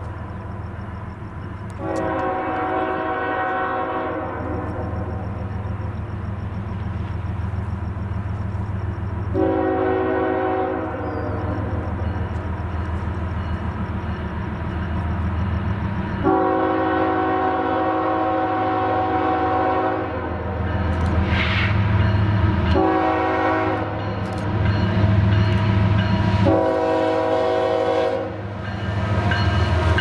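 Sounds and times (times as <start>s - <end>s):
locomotive engine rumble: 0.0s - 30.0s
locomotive air horn: 1.8s - 5.3s, 9.3s - 11.9s, 16.2s - 20.3s, 22.7s - 24.0s, 26.4s - 28.4s.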